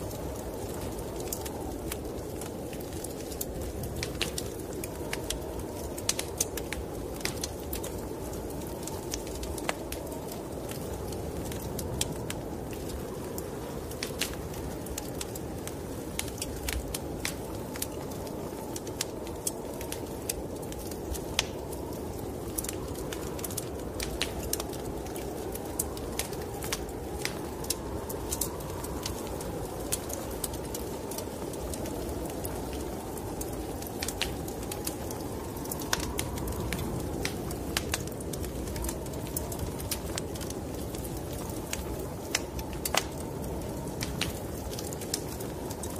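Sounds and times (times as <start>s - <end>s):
snowstorm wind rushing: 0.0s - 45.9s
wood fire crackling and popping: 0.0s - 45.9s.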